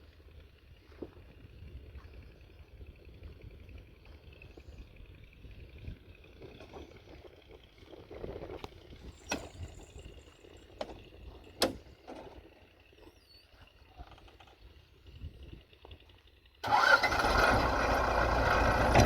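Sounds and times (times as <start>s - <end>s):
excavator engine running: 15.6s - 19.0s.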